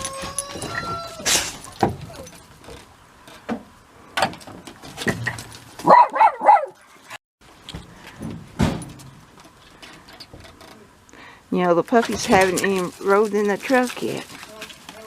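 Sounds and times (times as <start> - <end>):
dog barking: 5.8 - 6.8.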